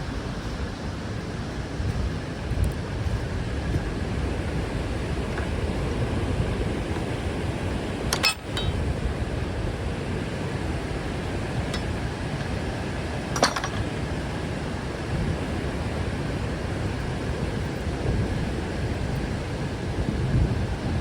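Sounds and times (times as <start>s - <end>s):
rushing water: 0.0s - 21.0s
wind on microphone: 0.0s - 21.0s
metallic clinks: 8.1s - 8.8s.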